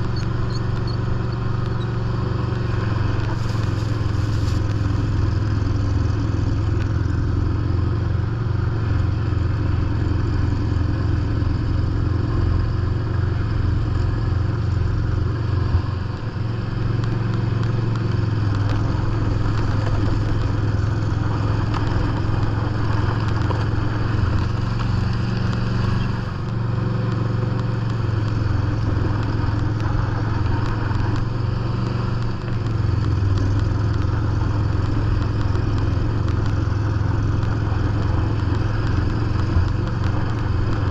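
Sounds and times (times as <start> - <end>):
snow blower clatter and scrape: 0.0 - 7.1, 16.7 - 40.9
lawn tractor engine running: 0.0 - 40.9.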